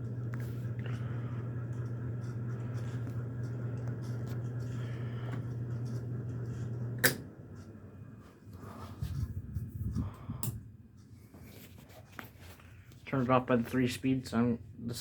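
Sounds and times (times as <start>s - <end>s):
ceiling fan motor humming: 0.0s - 15.0s.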